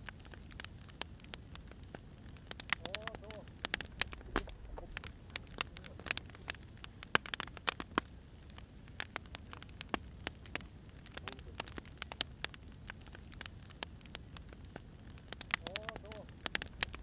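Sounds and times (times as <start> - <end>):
low steady rumble: 0.0 - 11.0, 16.4 - 17.0
firewood crackling and popping: 0.0 - 17.0.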